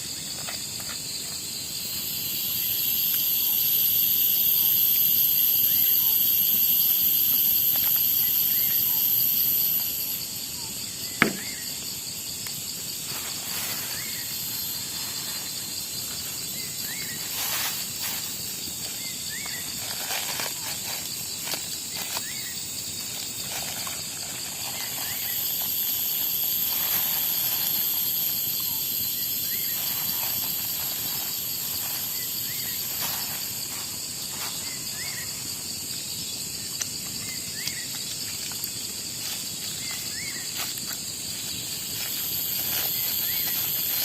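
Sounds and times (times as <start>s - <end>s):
cicadas trilling: 0.0s - 44.0s
crickets trilling: 0.0s - 44.0s.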